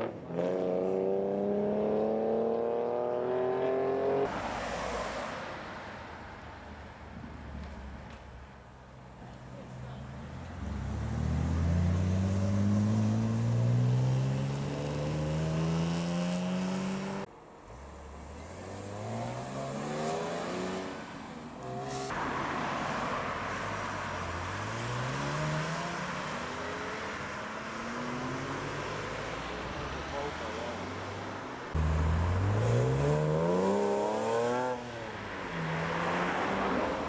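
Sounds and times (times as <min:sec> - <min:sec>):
cars accelerating away: 0:10.3 - 0:30.7, 0:31.7 - 0:37.0.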